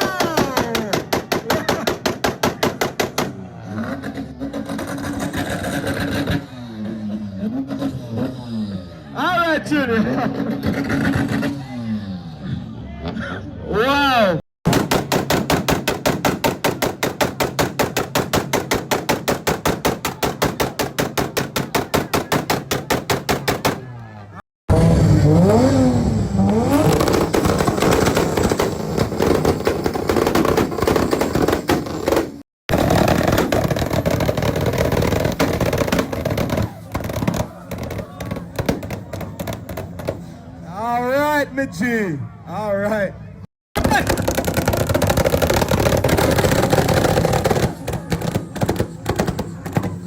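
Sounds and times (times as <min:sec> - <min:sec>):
car exhaust popping and crackling: 0:00.0 - 0:07.1, 0:14.6 - 0:24.1, 0:24.7 - 0:40.4, 0:43.8 - 0:50.0
engine running hard: 0:03.1 - 0:09.2, 0:24.7 - 0:40.6.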